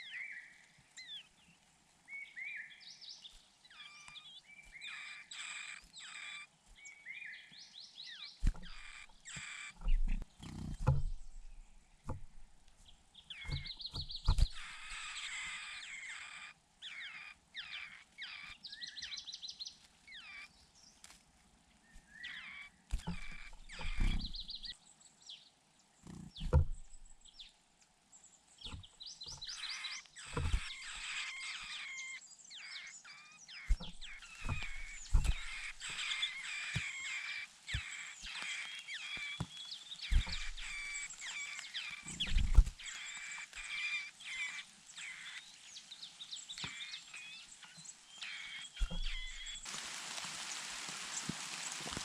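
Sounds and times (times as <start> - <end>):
nestlings begging chirps: 8.1 - 12.1, 13.2 - 19.5, 22.2 - 24.8, 28.6 - 49.7
dull low thumps: 23.0 - 24.7, 26.3 - 27.3, 33.7 - 36.9, 39.4 - 41.3, 42.1 - 42.9, 48.8 - 49.6.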